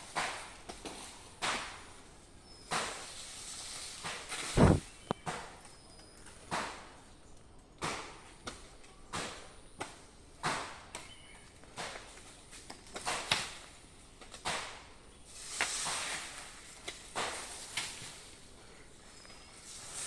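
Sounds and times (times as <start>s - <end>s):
chopping strikes into wood: 4.6s - 4.8s.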